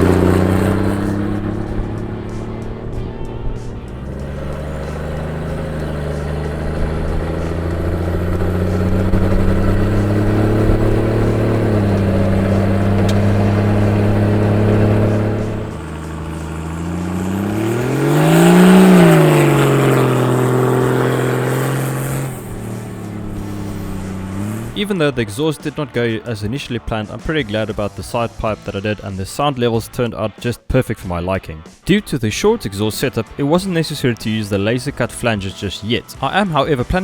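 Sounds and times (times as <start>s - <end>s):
diesel engine revving: 0.0s - 29.1s.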